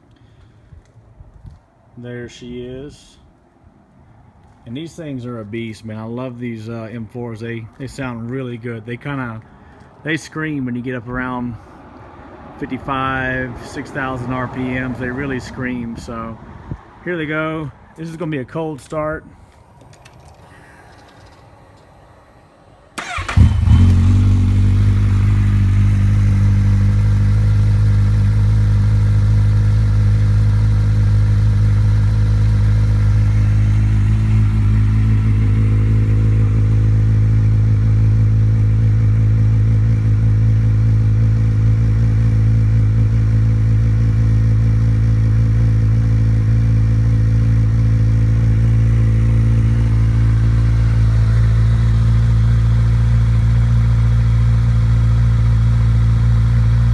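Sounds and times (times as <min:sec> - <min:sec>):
motorcycle engine starting and idling: 0:19.4 - 0:56.9.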